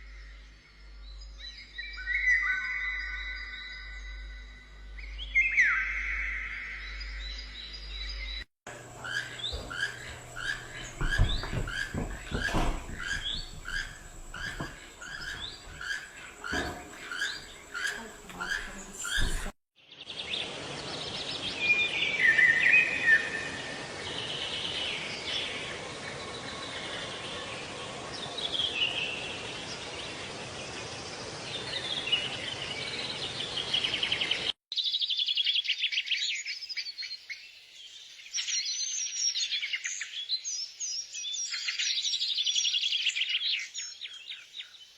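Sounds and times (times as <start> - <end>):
birds chirping: 4.9 - 44.9
varied bird calls: 5.0 - 19.6.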